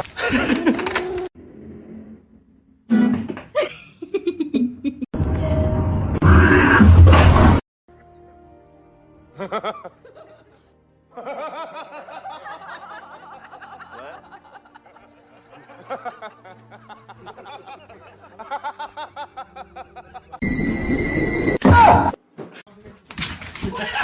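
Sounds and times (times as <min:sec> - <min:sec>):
person snickering and chuckling: 0:00.1 - 0:01.3, 0:03.5 - 0:05.1, 0:13.7 - 0:20.4.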